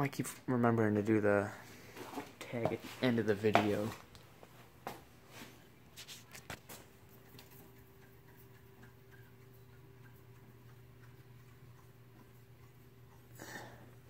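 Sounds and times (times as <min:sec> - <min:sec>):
faint steady hum: 0:00.0 - 0:14.0
faint clicks and knocks: 0:06.3 - 0:14.0
light ticks: 0:07.2 - 0:13.4.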